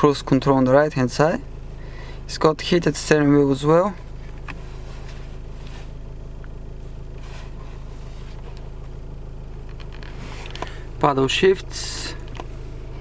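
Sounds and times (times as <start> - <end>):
car cabin hum: 0.0 - 13.0
faint handling rustles: 3.8 - 11.1.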